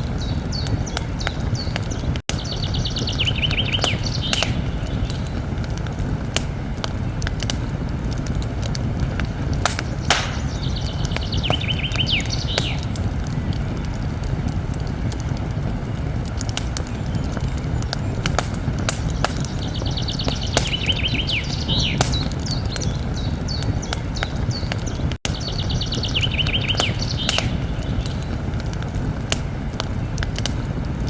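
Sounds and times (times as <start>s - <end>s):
campfire crackling and popping: 0.0s - 31.0s
songbird trilling: 0.2s - 5.3s, 9.7s - 12.8s, 19.0s - 24.6s, 25.3s - 28.2s
low rumble: 4.8s - 22.8s.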